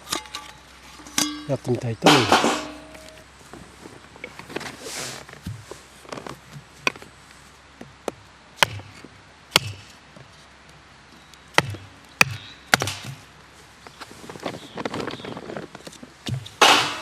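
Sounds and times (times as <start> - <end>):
firewood being chopped: 1.2 - 3.2, 7.8 - 10.3, 11.5 - 13.3, 16.2 - 17.0.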